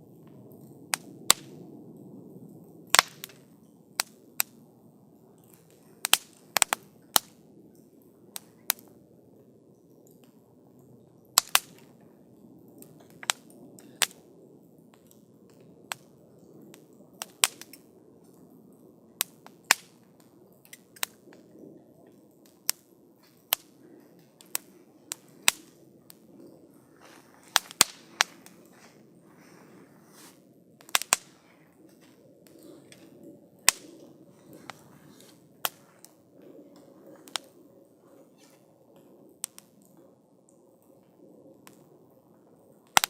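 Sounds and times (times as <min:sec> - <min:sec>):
campfire crackling and popping: 0:00.0 - 0:43.0
low rush of flames: 0:00.0 - 0:43.0.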